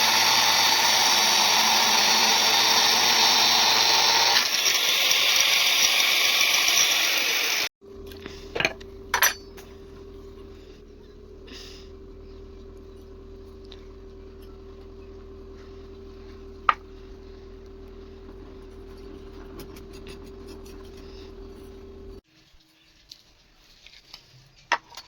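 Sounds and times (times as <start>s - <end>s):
steady machine hum: 7.8s - 22.2s.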